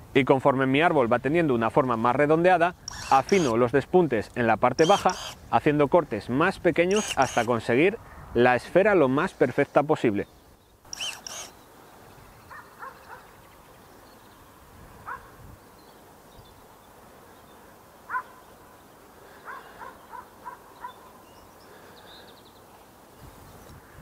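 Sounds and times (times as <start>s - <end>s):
bird calls: 10.2s - 14.5s, 15.1s - 22.8s.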